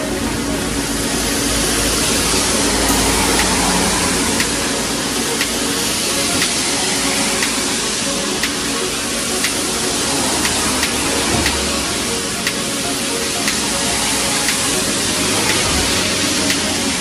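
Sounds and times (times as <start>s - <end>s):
background music: 0.0s - 17.0s
soft ticking beat: 0.0s - 17.0s.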